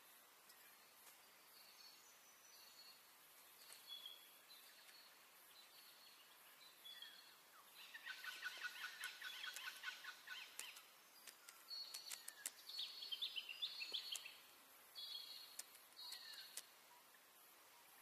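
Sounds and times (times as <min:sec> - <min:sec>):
birds chirping: 0:00.0 - 0:18.0
sharp clicks: 0:08.9 - 0:12.9, 0:15.5 - 0:16.7.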